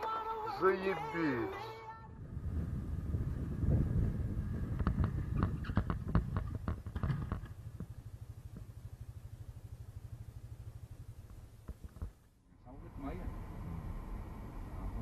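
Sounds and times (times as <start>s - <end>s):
vehicle engine and road rumble: 0.0s - 15.0s
sharp clicks and knocks: 4.8s - 8.7s, 11.3s - 12.3s.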